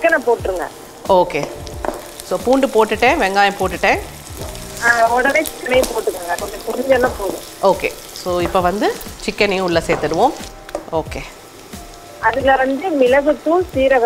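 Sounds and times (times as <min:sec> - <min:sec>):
onions sizzling in oil: 0:00.0 - 0:14.0
wooden spatula stirring: 0:01.0 - 0:12.3.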